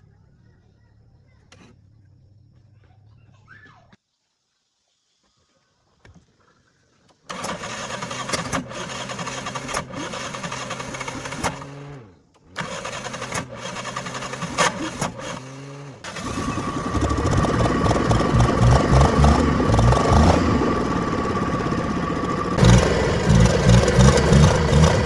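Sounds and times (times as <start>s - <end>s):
car engine running: 7.3s - 25.0s
starter motor cranking: 7.3s - 25.0s.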